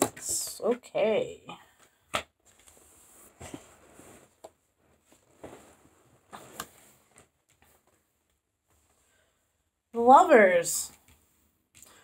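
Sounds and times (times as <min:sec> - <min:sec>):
cards tapping and rustling: 0:01.7 - 0:02.8.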